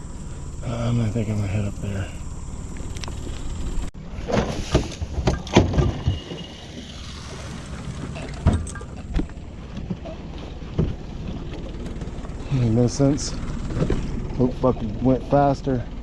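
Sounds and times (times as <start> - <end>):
low engine rumble: 0.0 - 16.0
knocks and thumps on boat: 4.2 - 6.6, 7.8 - 12.2.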